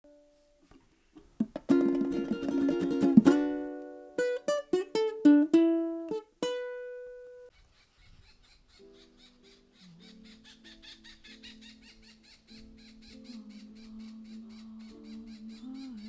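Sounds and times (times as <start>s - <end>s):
plucked string music: 0.0s - 7.5s.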